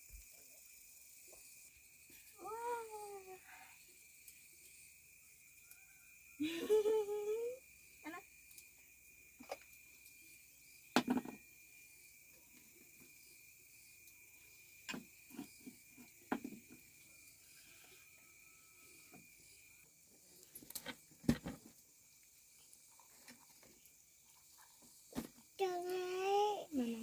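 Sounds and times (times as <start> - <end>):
objects knocking and clattering: 10.9 - 11.4, 14.9 - 16.8.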